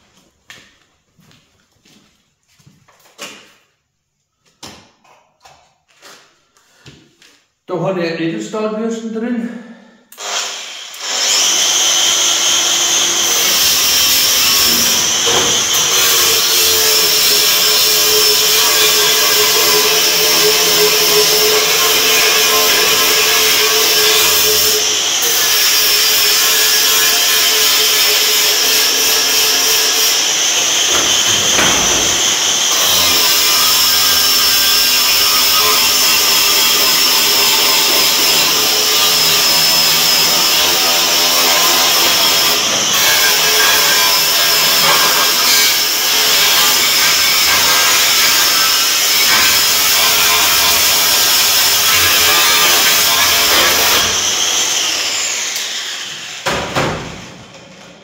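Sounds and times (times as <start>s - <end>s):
wire brush power tool whining: 10.2s - 56.5s.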